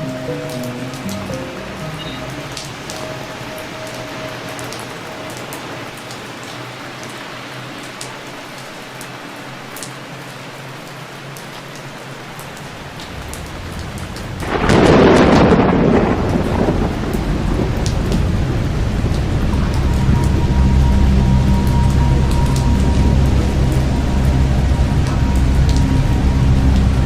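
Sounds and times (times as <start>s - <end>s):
steady rain: 0.0s - 27.0s
thunder: 13.1s - 27.0s.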